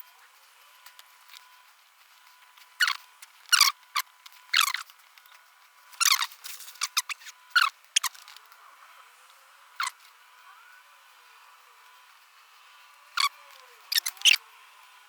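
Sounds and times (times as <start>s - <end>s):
crimping tool squeaky rasps and clicks: 2.7s - 5.4s, 6.0s - 8.4s, 13.2s - 14.4s.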